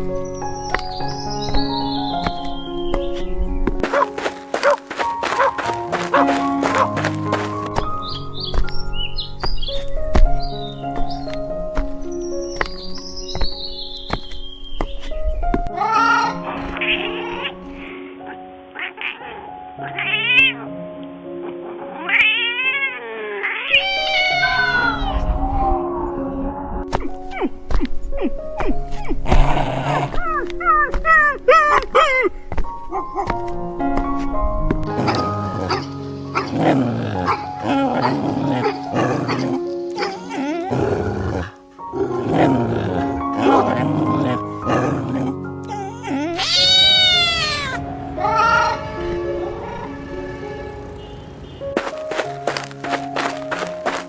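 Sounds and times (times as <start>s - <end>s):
background music: 0.0s - 54.0s
cat meowing: 18.8s - 20.7s, 21.9s - 25.8s, 46.4s - 48.8s.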